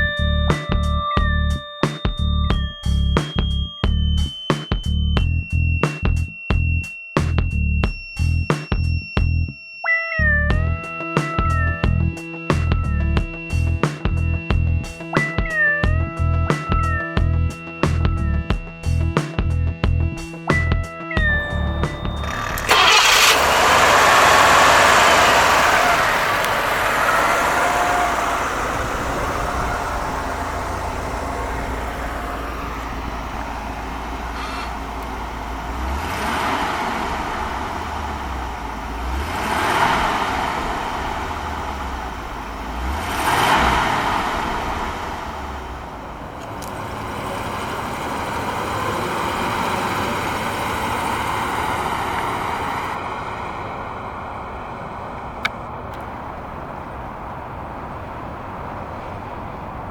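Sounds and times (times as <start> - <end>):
car engine running: 15.9 - 59.6.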